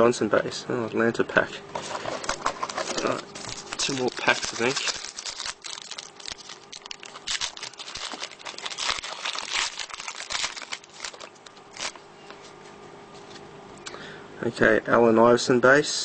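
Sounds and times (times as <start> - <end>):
wrapper tearing and crinkling: 1.9 - 12.0.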